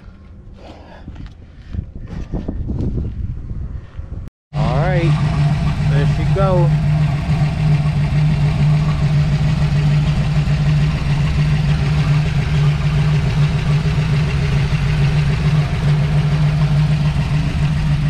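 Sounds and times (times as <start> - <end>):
car engine idling: 4.6 - 18.0.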